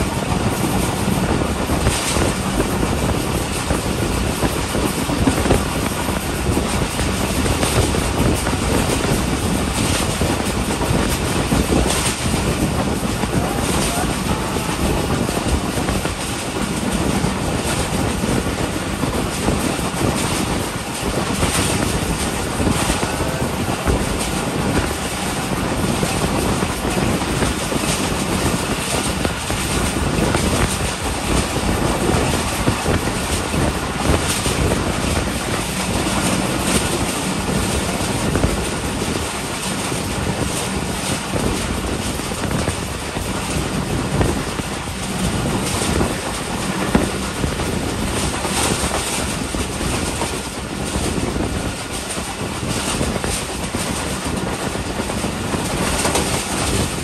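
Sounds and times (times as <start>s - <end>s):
sharp clicks from rails: 0.0s - 57.0s
train wheel and wind noise: 0.0s - 57.0s.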